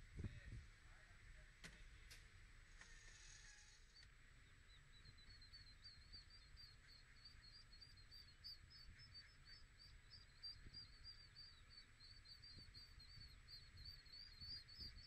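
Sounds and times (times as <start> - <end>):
low outdoor rumble: 0.0 - 15.0
high-pitched bird chirping: 4.7 - 15.0.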